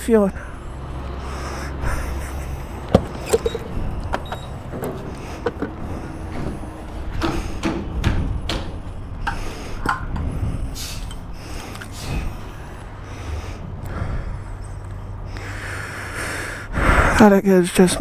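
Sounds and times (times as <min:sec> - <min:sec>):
steady low hum: 0:00.0 - 0:17.2
gas pump nozzle clicks and knocks: 0:02.9 - 0:10.3.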